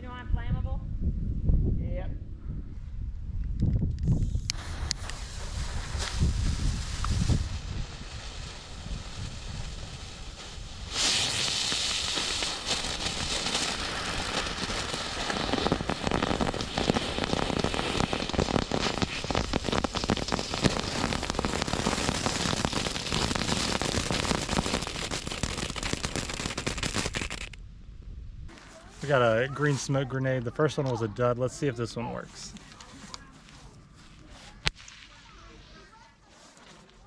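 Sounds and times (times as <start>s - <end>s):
firecrackers popping: 4.0s - 27.6s.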